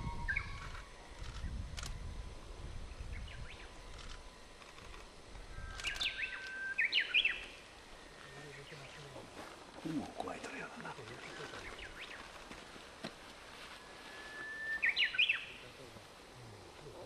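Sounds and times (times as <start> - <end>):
bird chirps and calls: 0.0 - 0.8, 5.6 - 7.6, 14.2 - 15.7
low outdoor rumble: 0.0 - 14.2.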